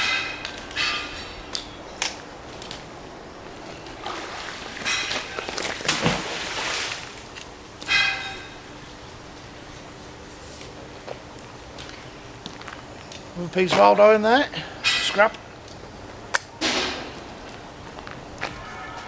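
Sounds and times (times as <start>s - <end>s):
water splashing: 3.9s - 7.3s.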